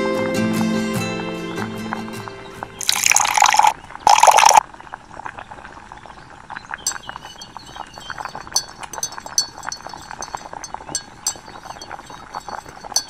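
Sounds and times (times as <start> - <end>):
water pouring and splashing: 2.8 - 13.0
metal spoon clinking on glass bowl: 6.9 - 13.0.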